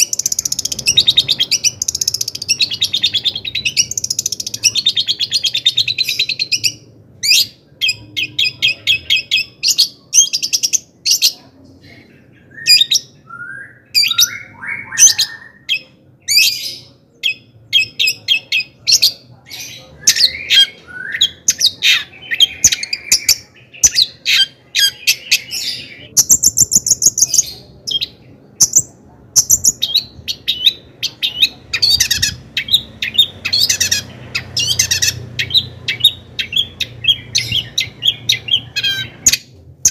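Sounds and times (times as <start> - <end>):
shrike singing chattering trills: 14.0 - 39.9.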